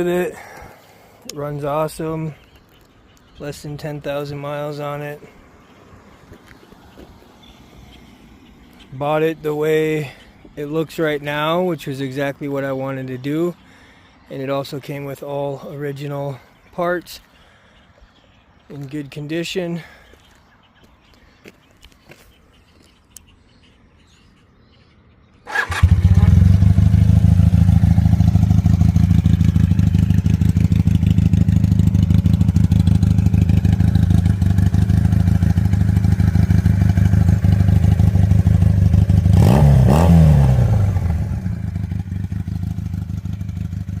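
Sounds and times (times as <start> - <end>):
motorcycle engine idling: 25.5 - 44.0.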